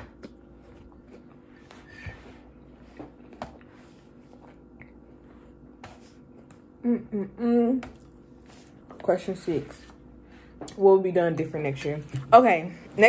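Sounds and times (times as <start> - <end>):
chewing cereal: 0.0 - 1.7.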